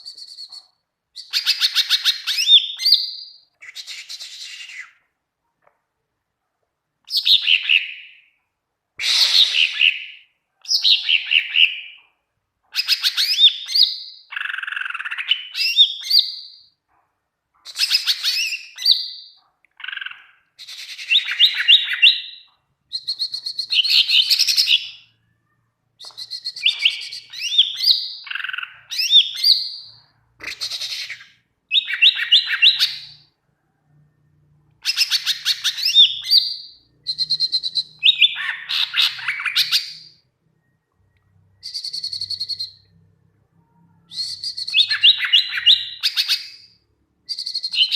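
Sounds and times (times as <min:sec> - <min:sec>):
bird singing rapid chirps: 0:17.6 - 0:25.2, 0:26.0 - 0:33.3, 0:34.8 - 0:43.0, 0:44.0 - 0:47.9.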